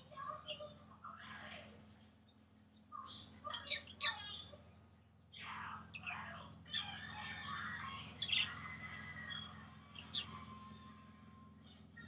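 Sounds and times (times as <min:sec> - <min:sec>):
parrots chirping and squawking: 0:03.0 - 0:04.7, 0:05.4 - 0:11.9.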